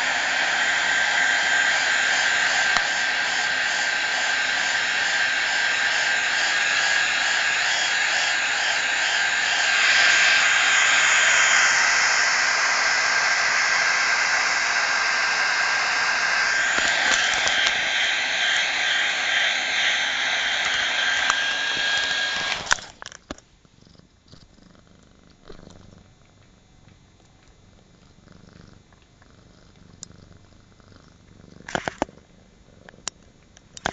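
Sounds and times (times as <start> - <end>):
cat purring: 0.0 - 22.2, 23.6 - 33.5
hair dryer blowing: 0.0 - 23.0
sharp clicks: 16.5 - 18.9, 20.5 - 23.5, 31.6 - 32.2, 32.9 - 33.9.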